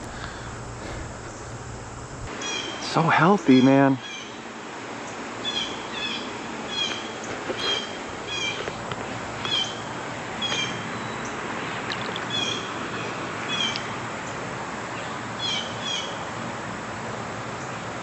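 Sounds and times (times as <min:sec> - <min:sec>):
bird calling: 0:00.0 - 0:02.8, 0:05.4 - 0:08.8, 0:09.4 - 0:14.4.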